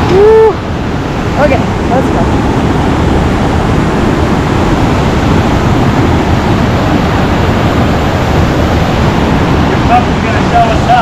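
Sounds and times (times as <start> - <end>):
river rushing over boulders: 0.0 - 11.0.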